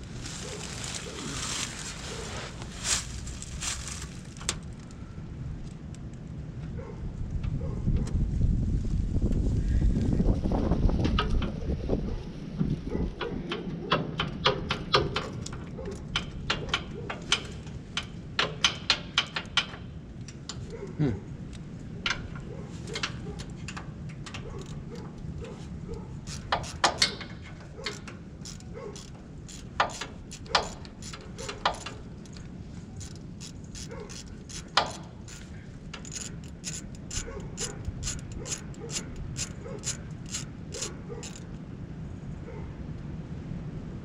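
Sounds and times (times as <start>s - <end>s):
ratchet wrench clicking: 26.2s - 32.4s, 33.0s - 41.5s.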